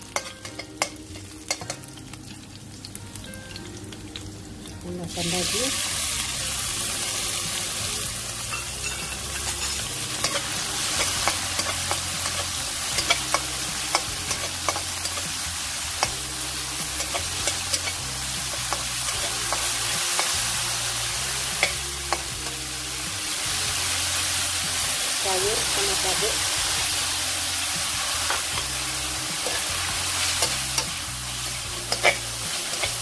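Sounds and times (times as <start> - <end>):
meat frying in a wok: 0.0 - 33.0
metal spatula scraping wok: 29.4 - 33.0.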